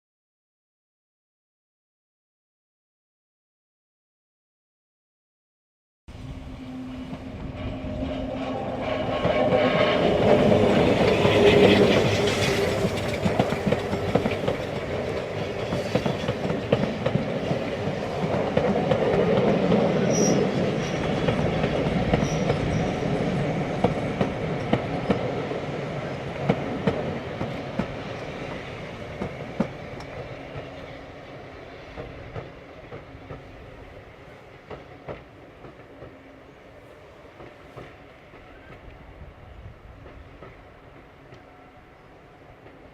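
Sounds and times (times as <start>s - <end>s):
train wheels clattering over rails: 6.8s - 36.4s.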